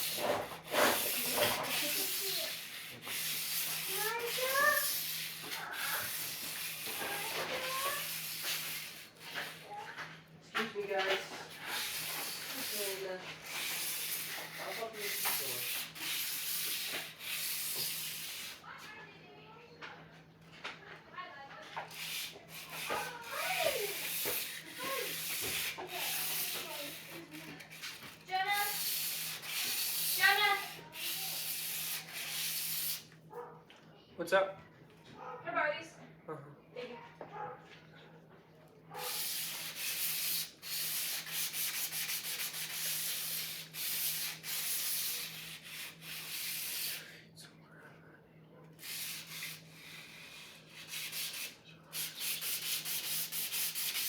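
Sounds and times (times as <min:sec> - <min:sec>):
rasping scraping rub: 0:00.0 - 0:09.8, 0:11.2 - 0:18.6, 0:21.9 - 0:33.1, 0:39.0 - 0:47.0.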